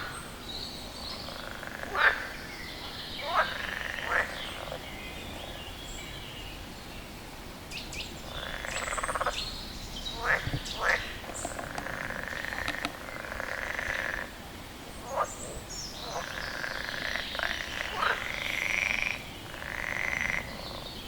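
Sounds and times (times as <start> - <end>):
frog croaking: 1.1 - 5.6, 8.2 - 9.5, 10.1 - 14.4, 15.0 - 21.0
short sharp frog calls: 3.2 - 4.8, 10.1 - 14.4.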